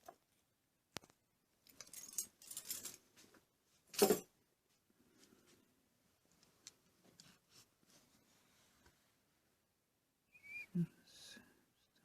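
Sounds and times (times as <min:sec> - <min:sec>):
lock parts clicking and scraping: 0:01.6 - 0:03.0.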